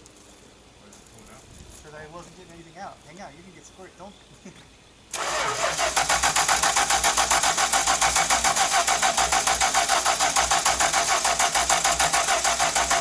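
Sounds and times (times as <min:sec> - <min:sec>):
car engine cranking on starter: 0:05.1 - 0:13.0.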